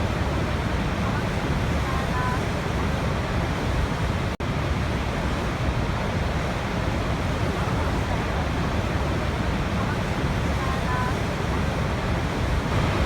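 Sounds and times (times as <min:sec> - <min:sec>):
waterfall rushing: 0:10.9 - 0:13.0.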